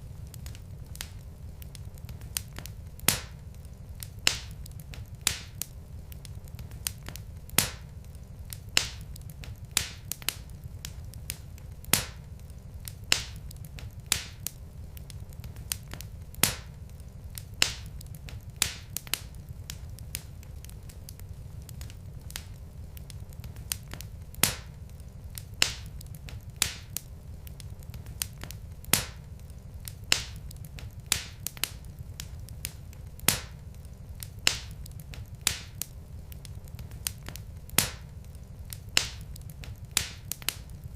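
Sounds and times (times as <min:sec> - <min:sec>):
low rumble of burning logs: 0:00.0 - 0:40.9
wood fire crackling and popping: 0:00.0 - 0:40.9.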